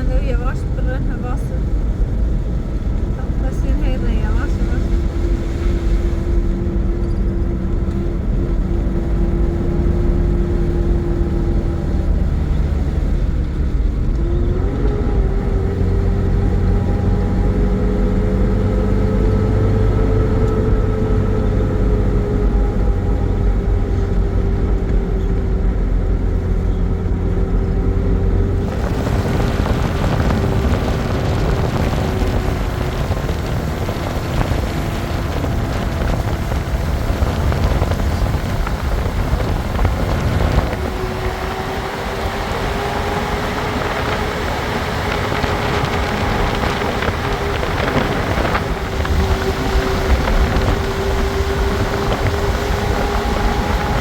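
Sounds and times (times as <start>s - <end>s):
engine droning hum: 0.0s - 54.0s
broad rushing noise: 28.3s - 54.0s.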